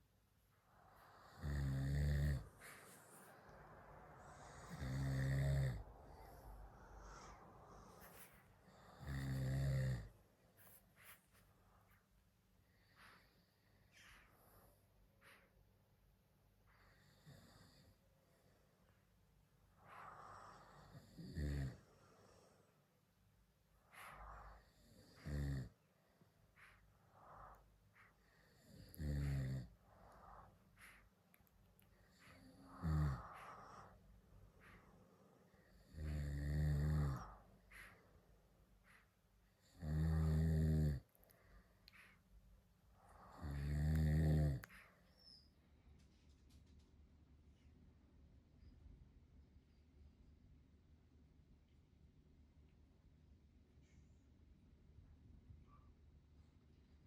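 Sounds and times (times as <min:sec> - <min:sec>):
quiet breathing: 0:00.0 - 0:46.8, 0:53.6 - 0:57.0
low-pitched snores: 0:00.7 - 0:10.2, 0:16.8 - 0:18.0, 0:19.7 - 0:22.6, 0:23.9 - 0:25.8, 0:26.6 - 0:31.1, 0:32.0 - 0:34.0, 0:35.6 - 0:38.0, 0:39.6 - 0:41.1, 0:42.9 - 0:45.4.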